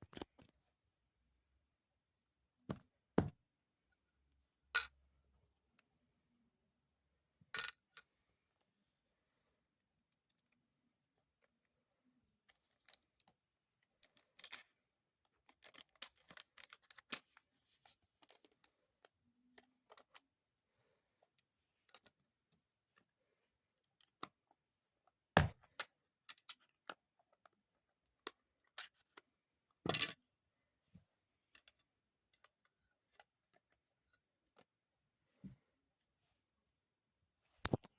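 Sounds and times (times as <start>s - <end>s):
packaging clicks taps and rustles: 15.3s - 17.4s.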